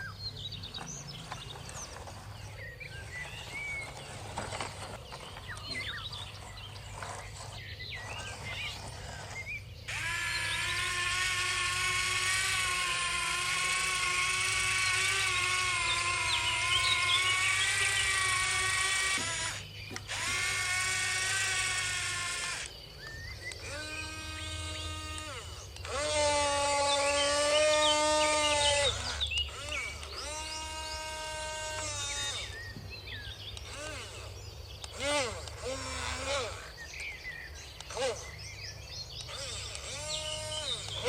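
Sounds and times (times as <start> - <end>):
birds chirping: 0.0 - 41.0
outdoor background noise: 0.0 - 41.0
toy electric motor whine: 0.0 - 41.0.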